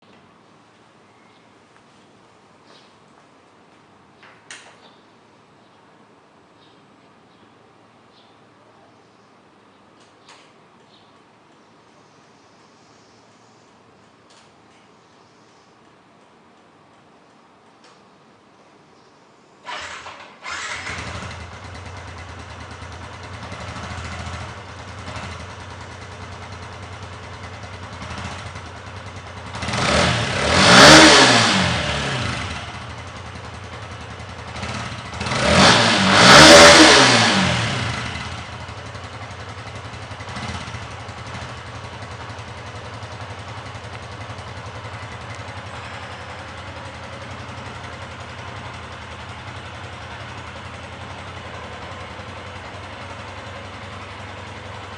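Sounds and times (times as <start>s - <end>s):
motorcycle engine starting: 19.6s - 54.9s
motorcycle engine idling: 19.7s - 54.9s
motorcycle engine revving: 19.7s - 54.9s.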